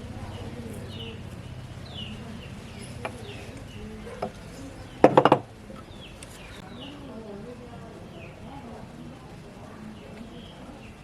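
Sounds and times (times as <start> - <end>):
birds chirping: 0.0 - 11.0
sharp knocks: 5.0 - 5.5.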